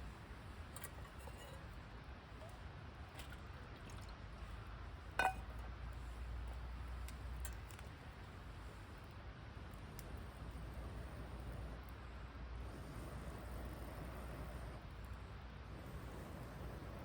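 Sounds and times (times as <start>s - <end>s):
camp cookware clink: 5.1s - 5.6s.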